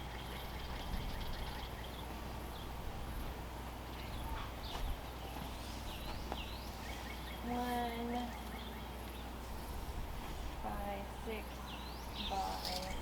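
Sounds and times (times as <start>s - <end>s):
bird chirps: 0.0s - 2.7s, 3.9s - 7.5s
steady low hum: 0.0s - 13.0s.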